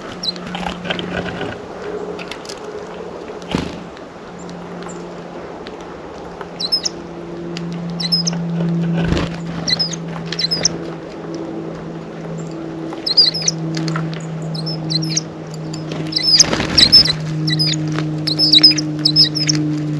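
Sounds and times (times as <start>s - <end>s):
birds scratching and pecking: 0.0s - 5.0s, 5.6s - 19.9s
steady low hum: 0.0s - 19.9s
high bird chirps: 6.6s - 7.0s, 8.0s - 8.4s, 9.7s - 10.8s, 13.0s - 13.6s, 14.5s - 19.6s.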